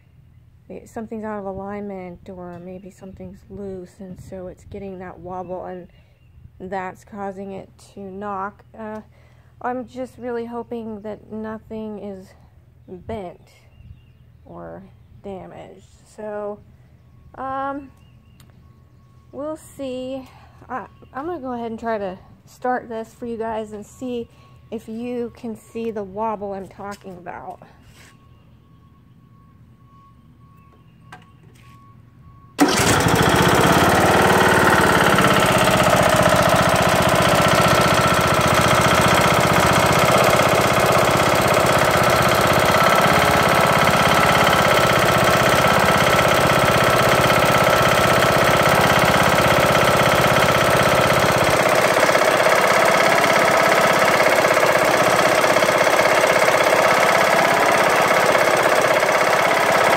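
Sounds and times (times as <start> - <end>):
engine knocking: 32.6 - 59.9
lawn tractor engine running: 32.6 - 59.9.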